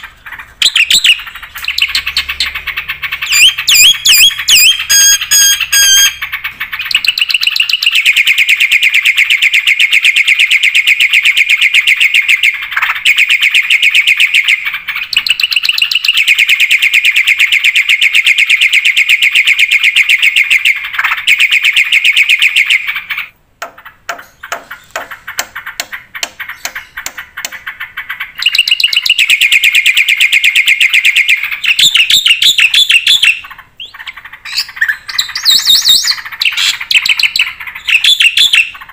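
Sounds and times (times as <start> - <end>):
bird high trills: 0.0 - 23.3, 24.2 - 38.9
bird sharp clicking notes: 23.6 - 30.0.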